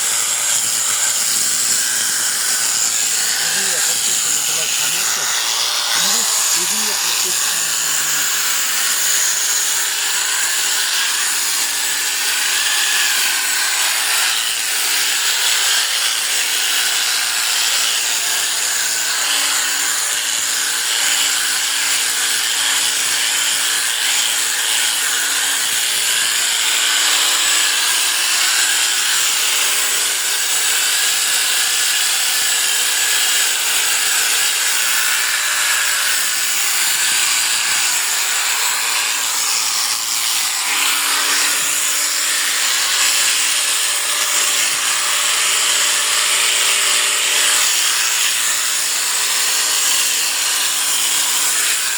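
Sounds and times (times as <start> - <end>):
electric sheep shearing clippers: 0.0 - 51.9.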